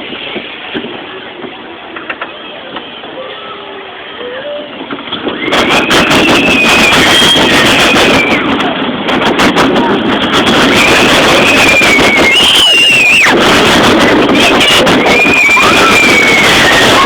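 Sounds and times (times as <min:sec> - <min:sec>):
roller coaster rattling and rushing: 0:00.0 - 0:17.0.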